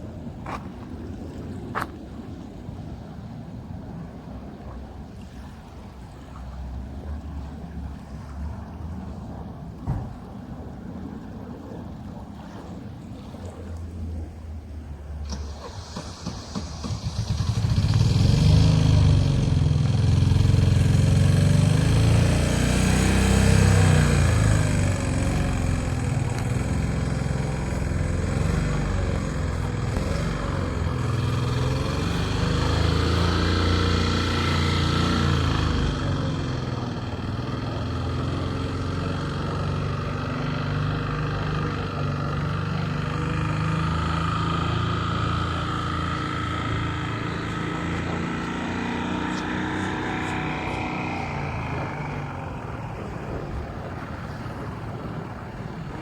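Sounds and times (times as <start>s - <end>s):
motor engine running: 14.9s - 56.0s.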